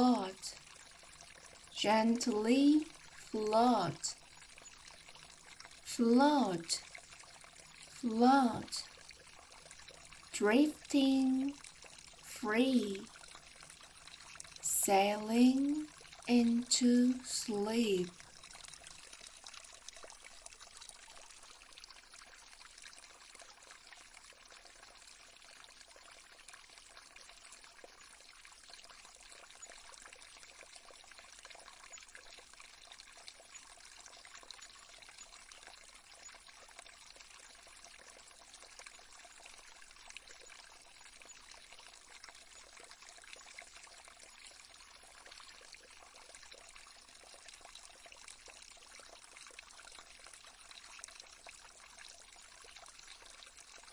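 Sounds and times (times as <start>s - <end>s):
water trickling: 0.0s - 53.9s.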